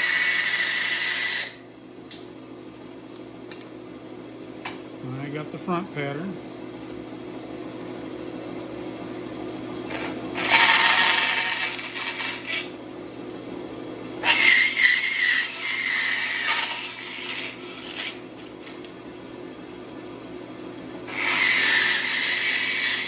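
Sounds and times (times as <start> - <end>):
bandsaw running: 0.0 - 1.6, 9.9 - 12.7, 14.2 - 18.2, 21.1 - 23.0.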